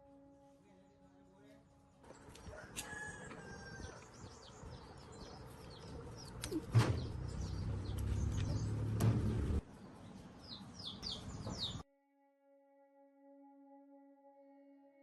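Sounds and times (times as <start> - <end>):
small birds chirping: 0.7 - 11.8.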